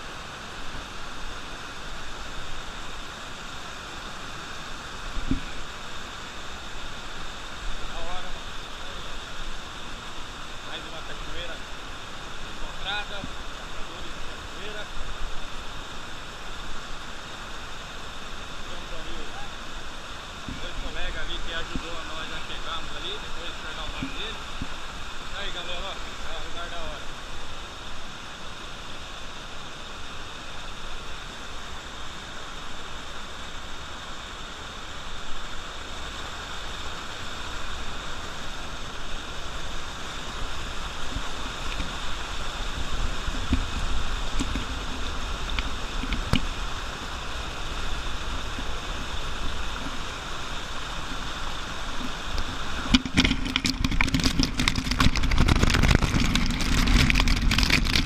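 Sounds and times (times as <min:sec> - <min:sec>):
waterfall rushing: 0:00.0 - 0:58.0
wind buffeting microphone: 0:52.0 - 0:58.0.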